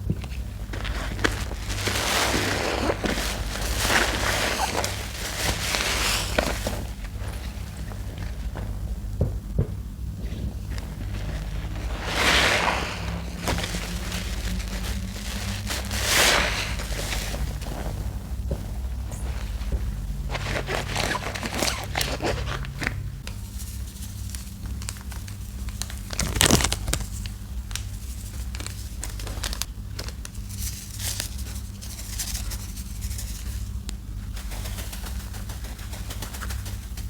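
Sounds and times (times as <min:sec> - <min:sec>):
wet soap paste crackling: 0:00.0 - 0:23.3
steady low hum: 0:00.0 - 0:37.0.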